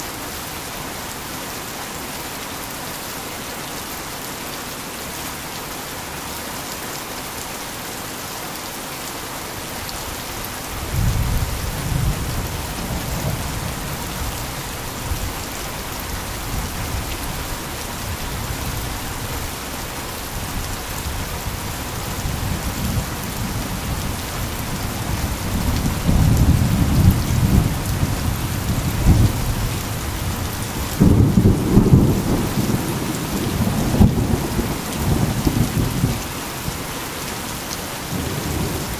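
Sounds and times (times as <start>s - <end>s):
heavy rain: 0.0s - 38.9s
thunder rumbling: 22.2s - 36.2s.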